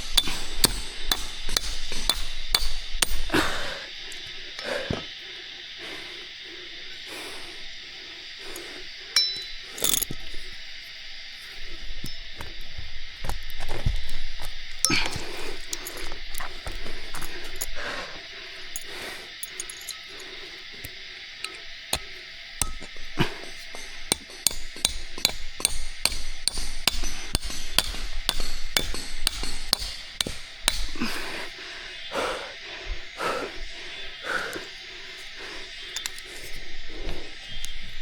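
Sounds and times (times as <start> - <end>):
hand tool striking: 0.0 - 4.2, 9.2 - 10.3, 14.4 - 17.7, 18.7 - 20.2, 20.8 - 31.6, 34.4 - 38.0.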